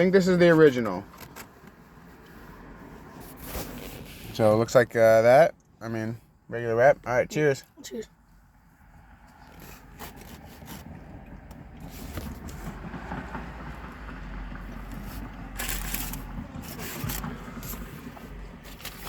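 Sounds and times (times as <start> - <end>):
paper wrapper crinkling: 15.6 - 17.3.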